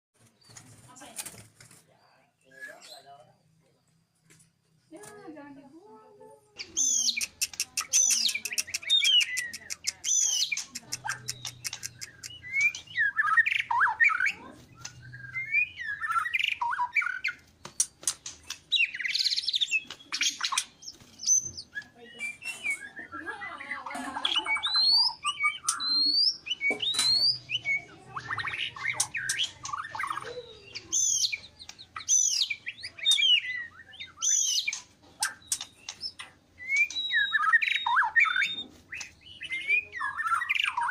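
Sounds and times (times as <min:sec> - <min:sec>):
songbird singing whistles and trills: 0:02.4 - 0:03.1, 0:06.6 - 0:40.9.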